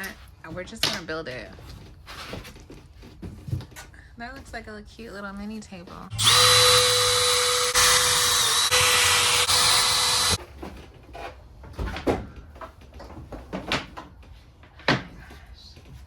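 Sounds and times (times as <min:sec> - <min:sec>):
power drill whine: 0:06.1 - 0:10.4.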